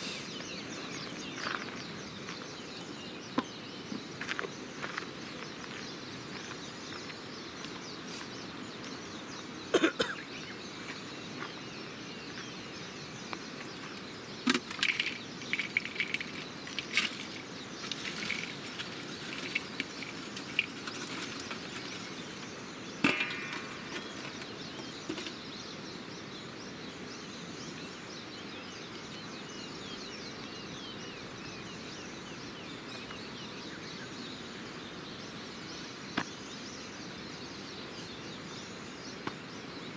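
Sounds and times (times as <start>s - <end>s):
outdoor background hiss: 0.0s - 39.9s
campfire crackling and popping: 14.4s - 24.8s.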